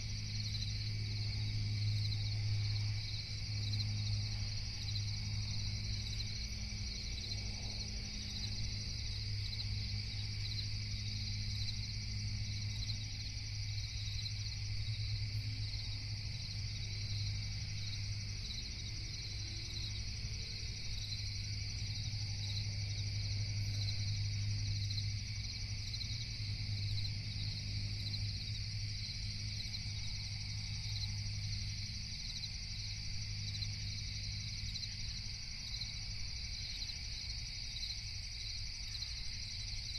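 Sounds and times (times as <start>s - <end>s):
crickets trilling: 0.0s - 39.9s
low steady hum: 0.0s - 39.9s.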